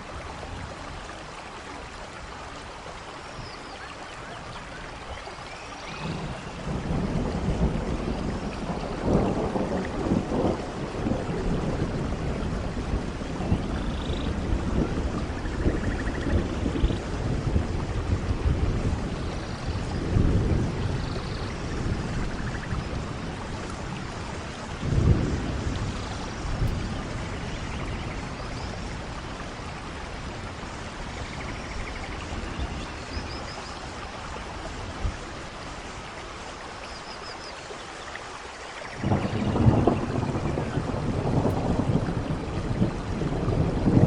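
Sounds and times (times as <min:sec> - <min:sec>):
heavy rainfall: 0:00.0 - 0:44.0.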